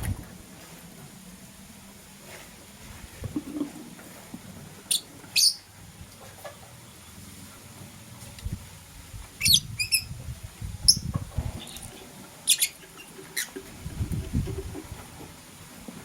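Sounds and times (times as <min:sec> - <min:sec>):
lovebirds chirping: 0:04.9 - 0:05.7, 0:09.4 - 0:10.2, 0:10.8 - 0:13.6.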